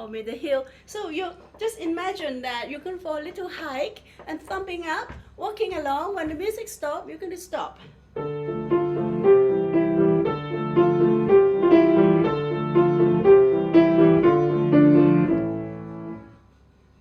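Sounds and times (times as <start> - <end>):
piano playing a tune: 8.1 - 16.4.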